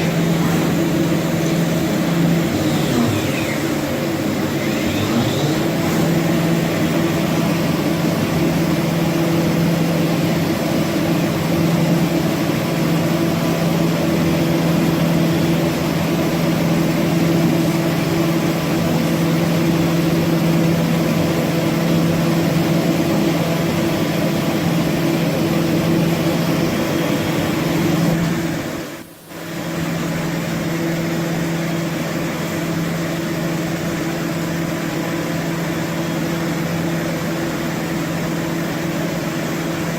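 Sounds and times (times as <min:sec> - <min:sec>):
machine humming with hiss: 0:00.0 - 0:21.8.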